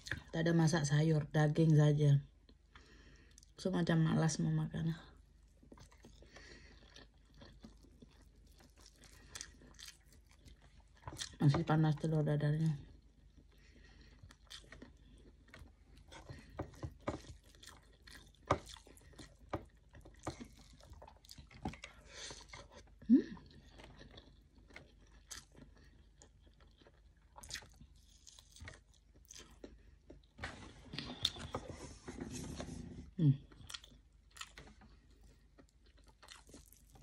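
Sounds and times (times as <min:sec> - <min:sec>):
chewing with wet smacks: 0:05.3 - 0:12.0, 0:12.7 - 0:30.4, 0:33.5 - 0:37.0.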